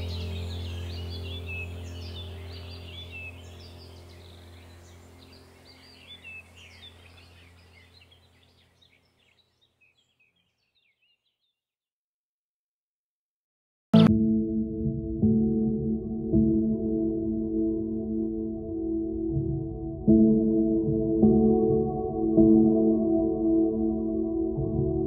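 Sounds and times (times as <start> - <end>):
steady low hum: 0.0 - 8.6
birds chirping: 0.0 - 11.6.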